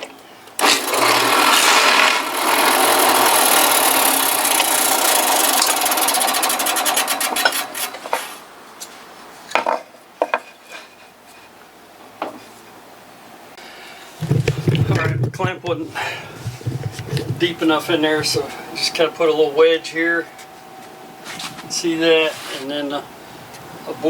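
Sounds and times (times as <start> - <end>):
drill press boring through wood: 0.6 - 8.2
knocks of wood being handled: 14.2 - 17.8.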